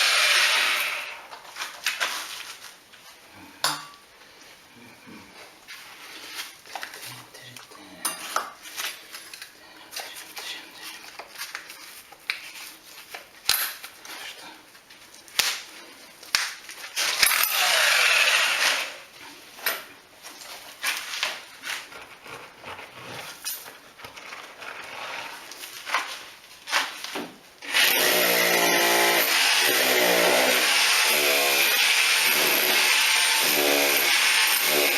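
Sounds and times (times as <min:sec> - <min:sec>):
power drill boring: 0:00.0 - 0:01.3, 0:17.0 - 0:19.0, 0:27.6 - 0:34.9.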